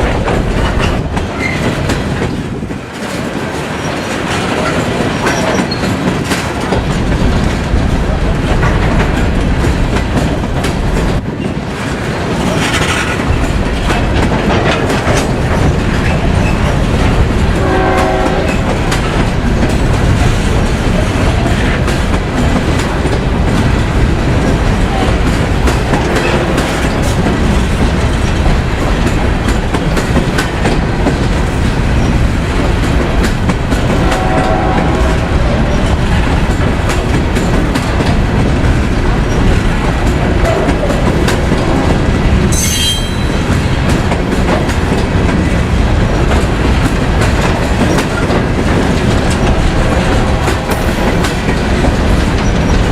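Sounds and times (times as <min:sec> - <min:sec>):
freight train wheels clicking: 0:00.0 - 0:52.9
train horn blast: 0:17.6 - 0:18.9, 0:33.9 - 0:35.6, 0:49.9 - 0:50.9.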